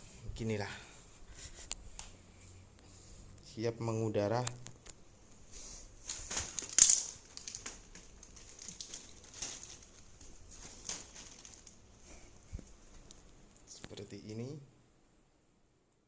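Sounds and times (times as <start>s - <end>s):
plastic sheeting crinkling: 5.6s - 13.2s.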